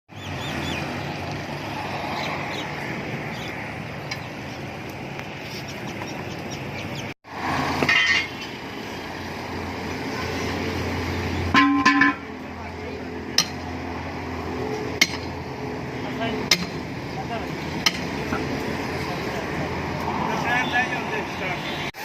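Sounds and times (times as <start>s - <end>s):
birds chirping: 0.1s - 7.2s
vehicle engine rumble: 0.1s - 21.9s.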